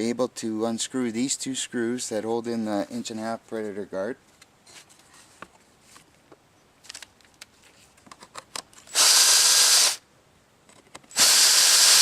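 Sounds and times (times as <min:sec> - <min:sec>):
power drill running: 0:08.9 - 0:10.0, 0:11.1 - 0:12.0.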